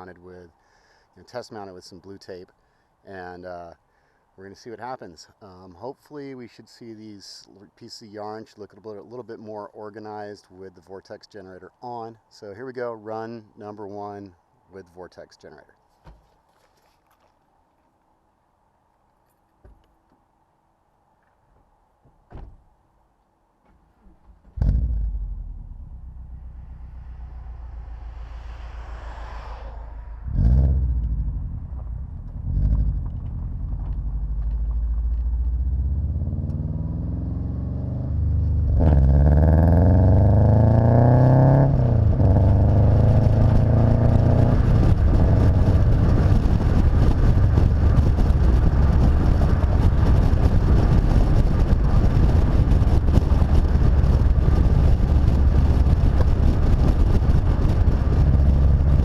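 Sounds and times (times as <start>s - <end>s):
road and wind noise: 0.0s - 59.0s
car accelerating: 24.6s - 59.0s
car engine starting and revving: 24.6s - 59.0s.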